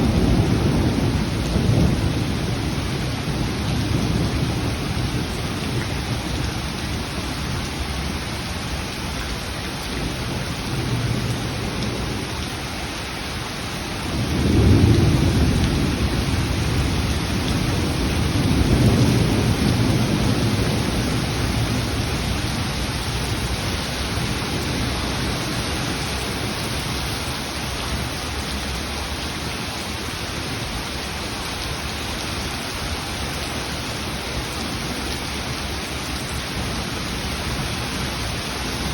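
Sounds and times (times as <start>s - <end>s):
thunder rumbling: 0.0s - 8.7s, 13.3s - 28.9s, 33.8s - 38.9s
heavy rain falling: 0.0s - 38.9s.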